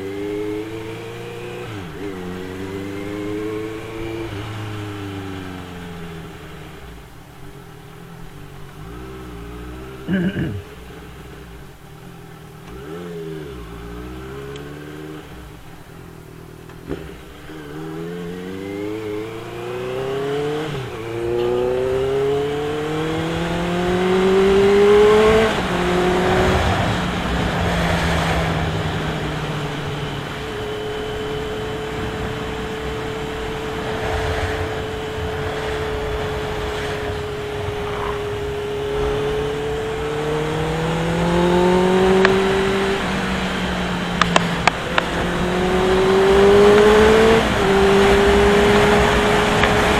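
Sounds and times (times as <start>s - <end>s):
motorcycle engine accelerating: 0.0s - 49.9s
wind rush: 19.2s - 49.9s.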